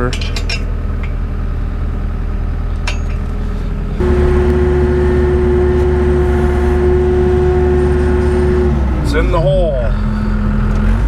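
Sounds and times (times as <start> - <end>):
skid steer engine running: 0.7 - 11.0
machine whine under load: 3.3 - 11.0.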